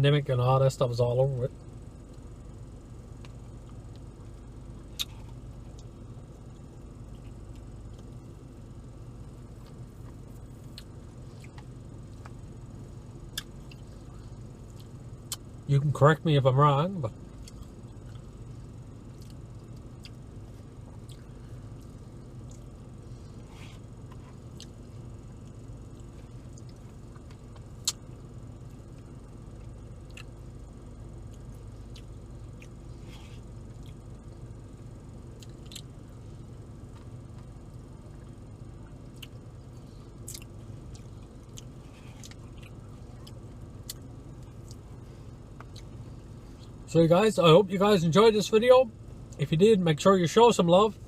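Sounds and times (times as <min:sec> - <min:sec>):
steady low hum: 0:00.0 - 0:51.0
man chewing food: 0:03.2 - 0:08.4, 0:09.4 - 0:15.5, 0:17.3 - 0:36.2, 0:36.8 - 0:46.8.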